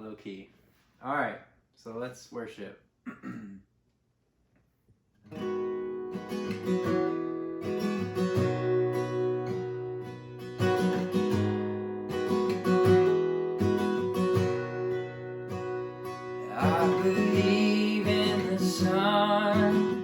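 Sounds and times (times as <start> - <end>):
acoustic guitar strumming chords: 5.3 - 20.0.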